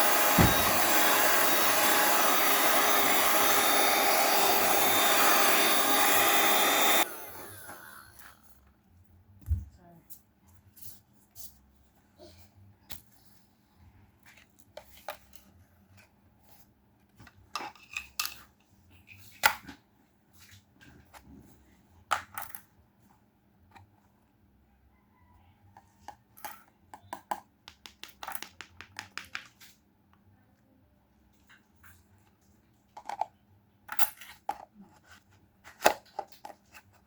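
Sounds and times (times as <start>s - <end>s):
knocks: 0.3s - 1.0s.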